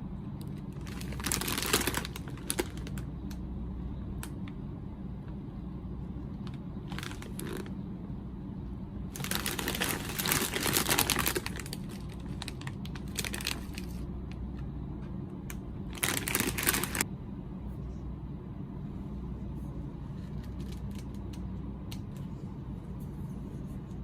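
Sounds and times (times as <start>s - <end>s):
plastic packaging crinkling: 0.6s - 3.1s, 6.4s - 7.7s, 9.1s - 14.1s, 15.9s - 17.0s, 20.2s - 21.3s
packaging rustle or tear: 0.7s - 3.0s, 6.9s - 7.7s, 9.2s - 14.0s, 15.9s - 17.0s.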